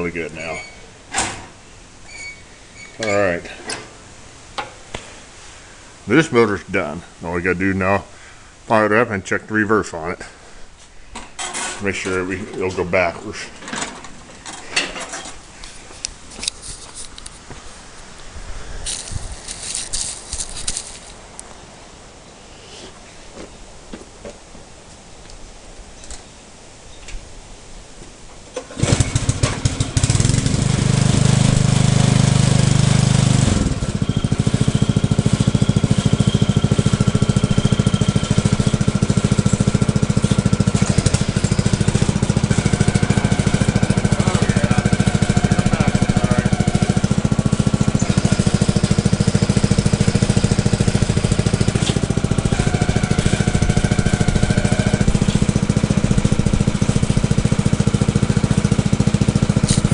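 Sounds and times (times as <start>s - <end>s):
small engine starting and running: 28.6s - 59.9s.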